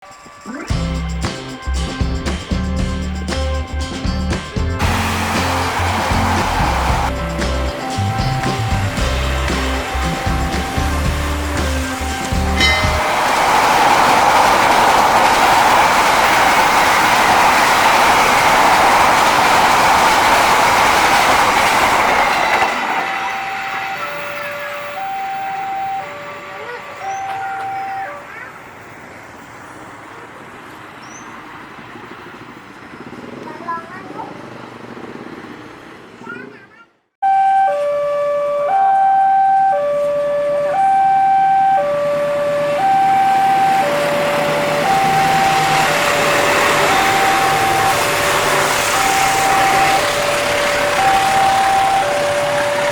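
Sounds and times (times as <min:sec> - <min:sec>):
train passing at speed: 0:00.0 - 0:36.8, 0:39.5 - 0:52.9
level crossing warning alarm: 0:04.8 - 0:29.9, 0:37.2 - 0:52.9.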